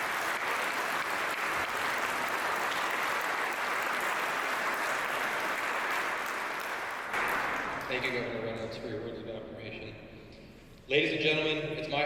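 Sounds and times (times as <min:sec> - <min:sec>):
large audience applauding: 0:00.0 - 0:08.3.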